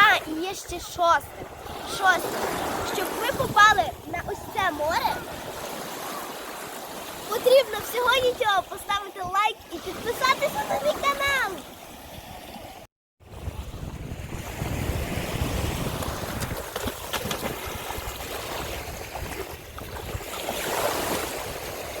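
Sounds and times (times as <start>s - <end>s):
wind buffeting microphone: 0.0s - 5.6s, 7.5s - 22.0s
sea waves washing on shore: 0.0s - 22.0s.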